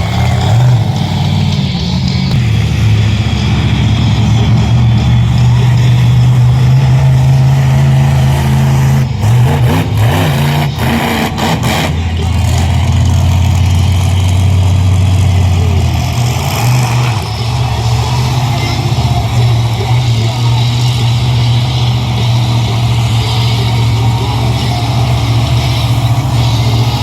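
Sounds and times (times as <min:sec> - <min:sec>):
monster truck engine running: 0:00.0 - 0:27.0.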